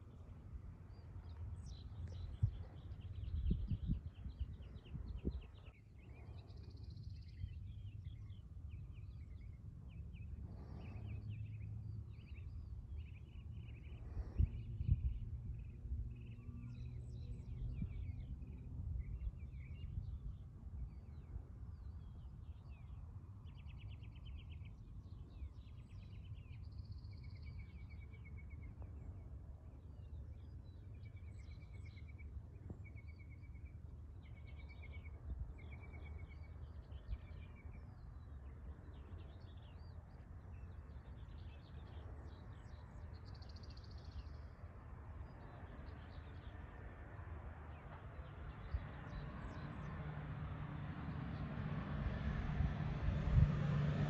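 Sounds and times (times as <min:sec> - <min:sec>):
steady low rumble: 0:00.0 - 0:43.2
small birds singing and chirping: 0:00.1 - 0:46.6, 0:47.7 - 0:49.9.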